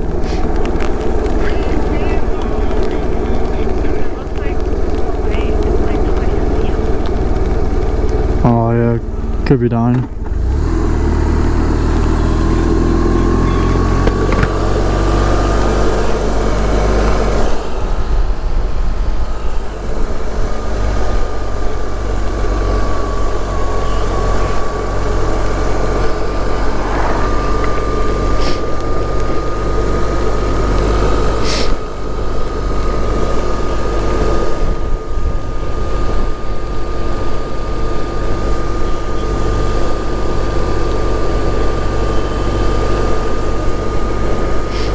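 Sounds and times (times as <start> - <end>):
motorcycle engine drone: 0.0 - 44.9
thin high whine: 0.0 - 44.9
wind noise: 13.5 - 38.8.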